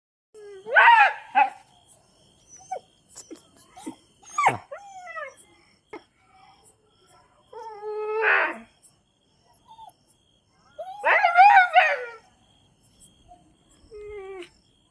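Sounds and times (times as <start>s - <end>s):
dog whining and yelping: 2.4s - 5.4s, 9.6s - 10.0s, 10.8s - 12.2s.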